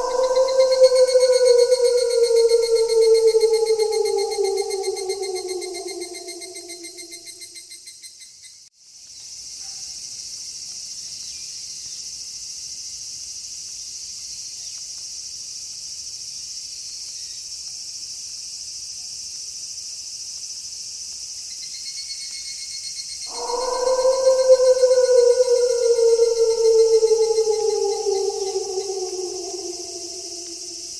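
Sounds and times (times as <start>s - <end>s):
loud long pitched call: 0.0s - 7.4s, 23.3s - 30.9s
night insects chorus: 0.0s - 7.6s, 23.3s - 30.9s
pulsing insect trill: 0.0s - 7.6s, 23.3s - 30.9s.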